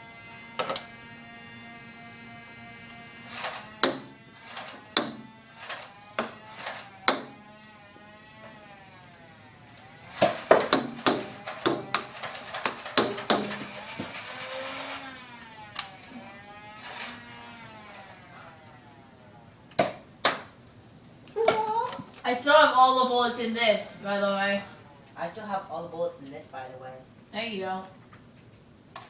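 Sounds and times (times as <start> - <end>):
blaster motor whirring: 0.0 - 19.3
darts clicking and knocking: 3.3 - 7.4, 10.1 - 15.1, 19.7 - 20.6.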